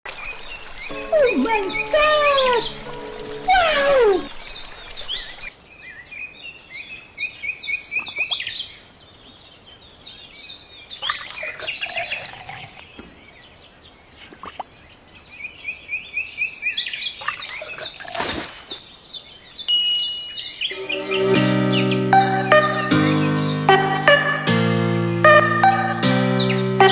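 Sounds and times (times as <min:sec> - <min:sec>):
small birds chirping: 0:00.1 - 0:05.5.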